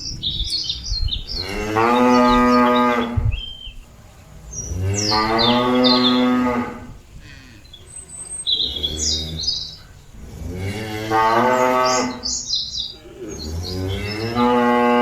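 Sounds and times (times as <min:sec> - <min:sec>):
bird chirps: 0:00.0 - 0:06.4, 0:07.4 - 0:10.1, 0:11.3 - 0:14.5
cow mooing: 0:01.4 - 0:03.2, 0:04.8 - 0:07.8, 0:08.6 - 0:12.3, 0:13.0 - 0:15.0.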